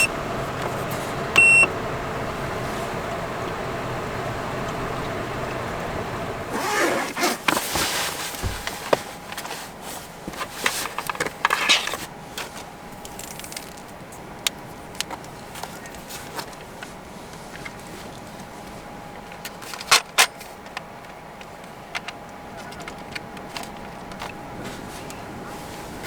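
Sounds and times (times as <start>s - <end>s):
faint steady tone: 0.0s - 6.5s
handling rustling and scraping: 6.5s - 14.0s, 14.7s - 26.0s.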